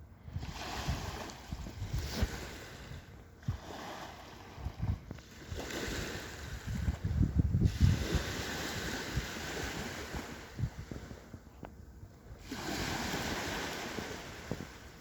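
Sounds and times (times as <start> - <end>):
wind: 0.0 - 15.0
wind gusts on microphone: 0.0 - 15.0.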